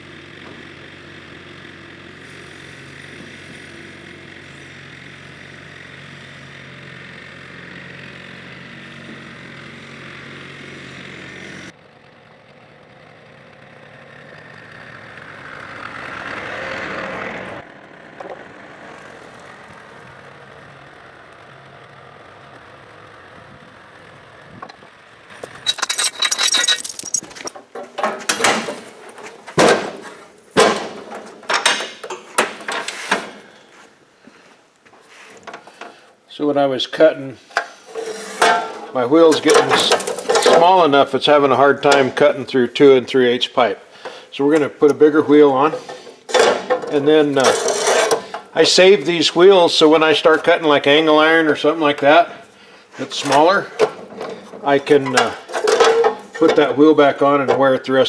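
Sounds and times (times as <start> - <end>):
metal clanks and knocks: 25.4 - 33.4, 37.9 - 40.8, 45.8 - 48.5, 53.2 - 56.7
cutoff saw grinding steel pipe: 37.6 - 39.4, 47.4 - 48.6.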